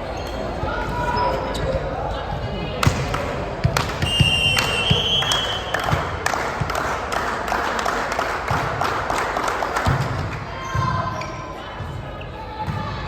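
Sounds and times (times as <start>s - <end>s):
people clapping and cheering: 3.0s - 10.6s.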